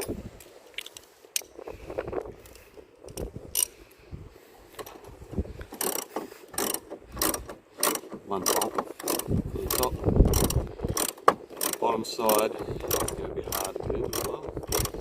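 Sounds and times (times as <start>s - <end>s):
ratchet wrench clicking: 3.1s - 3.7s, 5.8s - 15.0s.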